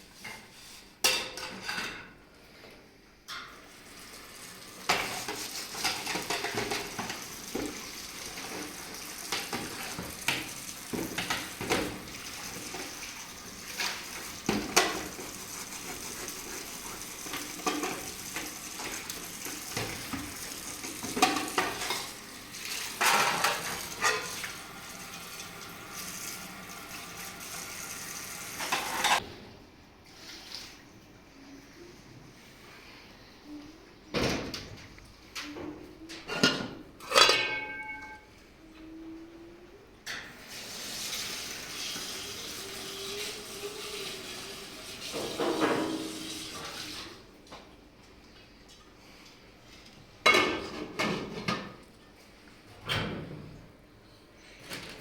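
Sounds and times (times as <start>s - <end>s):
food sizzling: 3.6s - 29.2s, 40.4s - 47.2s
utensils clinking against pot: 4.9s - 7.3s, 20.8s - 24.5s, 36.1s - 38.3s.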